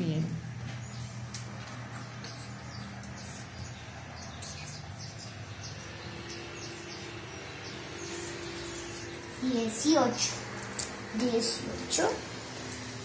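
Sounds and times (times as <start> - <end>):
steady low hum: 0.0 - 13.0
small bird chirping: 0.8 - 10.4.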